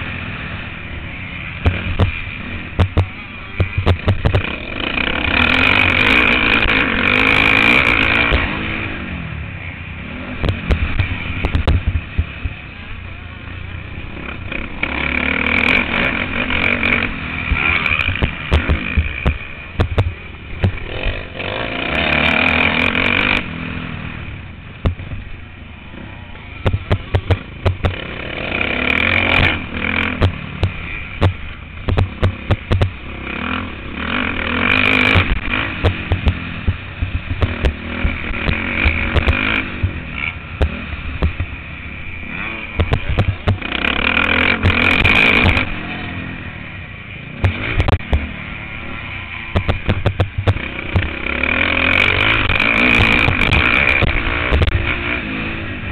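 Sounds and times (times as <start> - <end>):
motocross bike engine revving: 0.0 - 55.9
bike knocks and clatter: 2.8 - 4.5, 10.4 - 12.6, 17.5 - 21.0, 26.6 - 28.0, 30.2 - 33.0, 35.1 - 40.0, 40.6 - 41.6, 42.8 - 43.7, 47.4 - 48.3, 49.6 - 51.2.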